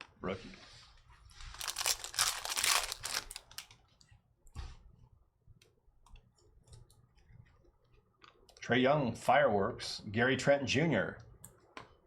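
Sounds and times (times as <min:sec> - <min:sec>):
foil wrapper tearing and crinkling: 0:01.5 - 0:03.7.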